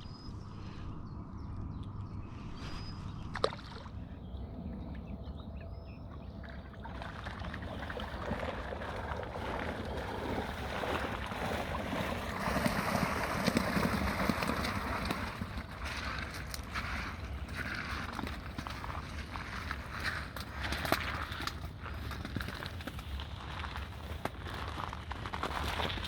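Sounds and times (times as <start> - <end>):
water sloshing and splashing: 3.2 - 26.0.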